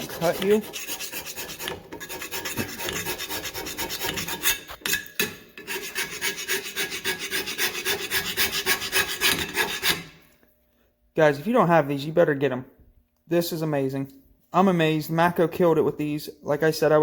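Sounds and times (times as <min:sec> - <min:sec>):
hand scraper scraping metal: 0:00.0 - 0:10.2.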